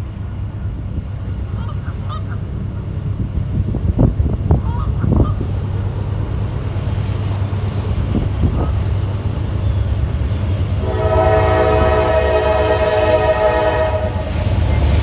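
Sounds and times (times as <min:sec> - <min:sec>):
train rumbling past: 0:00.0 - 0:15.0
train horn blast: 0:10.8 - 0:14.6.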